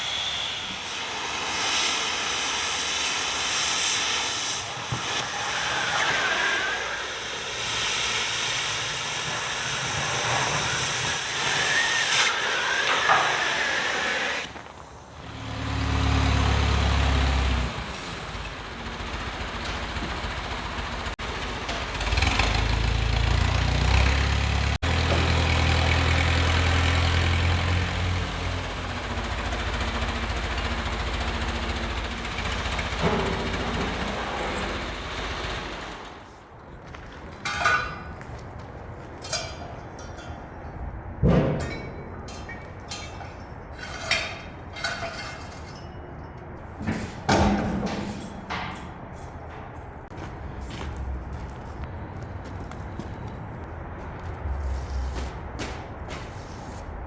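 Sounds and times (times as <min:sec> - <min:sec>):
loud hissing of metal cutting: 0:00.0 - 0:15.4.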